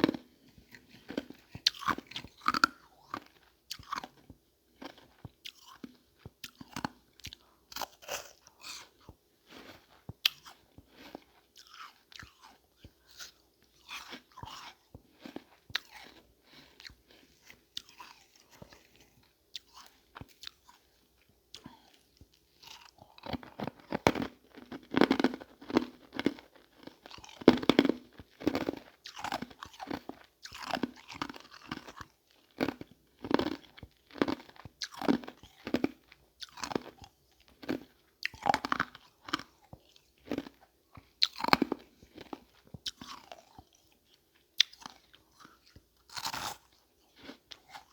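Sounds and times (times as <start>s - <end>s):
crunching and chewing ice: 0.0s - 47.9s.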